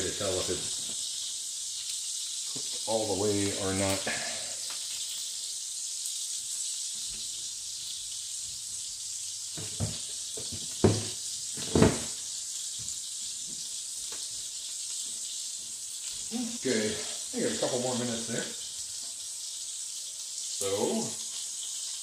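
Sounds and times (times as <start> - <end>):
burger patties sizzling in grease: 0.0 - 22.0.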